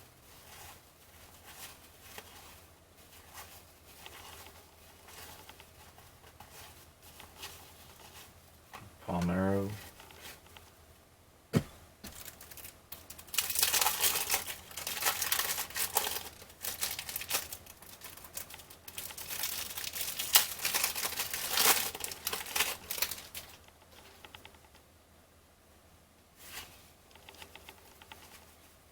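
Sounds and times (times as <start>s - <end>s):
cellophane tearing and crinkling: 12.0s - 23.6s.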